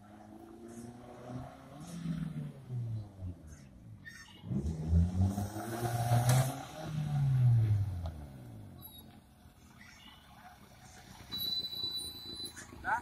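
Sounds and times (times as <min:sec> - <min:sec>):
car engine revving: 0:00.0 - 0:09.2.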